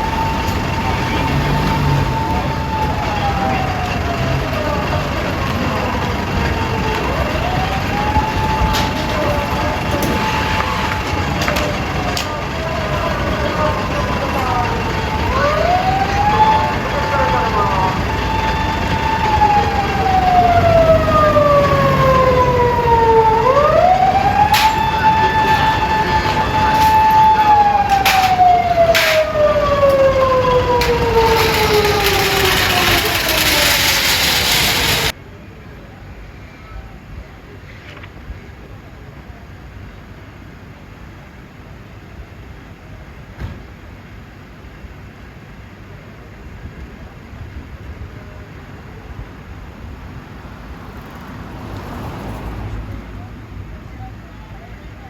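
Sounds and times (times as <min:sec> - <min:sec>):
fire engine siren wailing: 0:00.0 - 0:35.2
traffic noise: 0:00.0 - 0:55.0.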